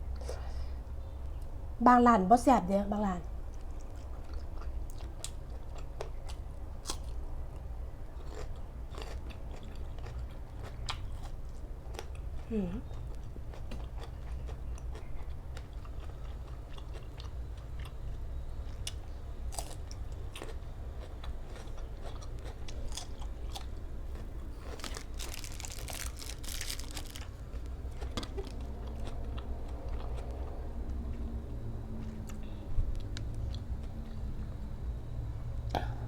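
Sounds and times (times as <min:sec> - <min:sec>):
person chewing crunchy food: 0:03.4 - 0:34.3
low hum: 0:22.7 - 0:36.0.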